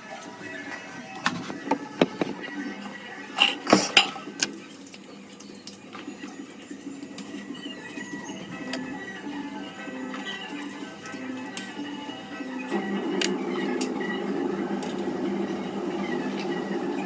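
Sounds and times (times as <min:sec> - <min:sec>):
utensils clinking against pots: 0:03.2 - 0:06.4.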